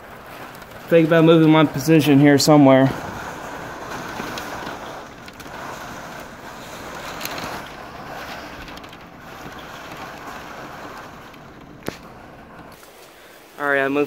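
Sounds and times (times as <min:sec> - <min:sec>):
gusty wind buffeting microphone: 0:00.0 - 0:12.8.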